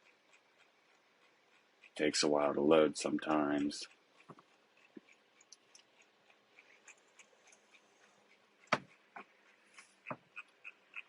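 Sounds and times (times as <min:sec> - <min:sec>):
computer mouse clicks: 0:03.3 - 0:11.0.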